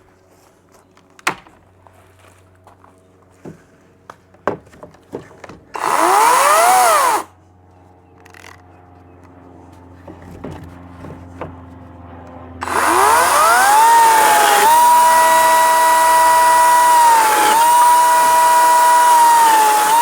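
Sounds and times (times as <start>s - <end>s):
chainsaw running: 5.8s - 7.3s, 12.6s - 20.0s.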